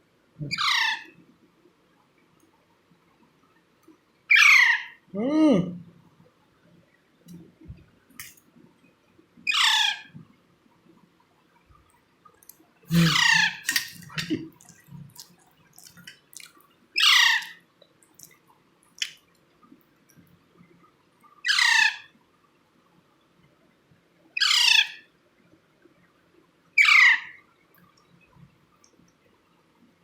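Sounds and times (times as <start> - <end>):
parakeet chick squawking: 0.4 - 1.1, 4.3 - 5.0, 9.5 - 10.1, 12.9 - 13.9, 17.0 - 17.6, 21.5 - 22.0, 24.4 - 25.0, 26.8 - 27.4.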